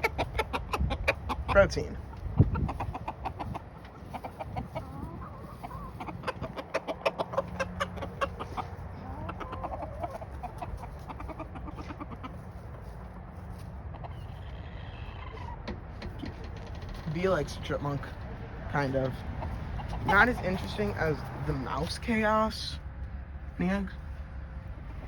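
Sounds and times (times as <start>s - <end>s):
chicken wavering calls: 0.0s - 22.7s
chickens clucking: 0.0s - 25.0s.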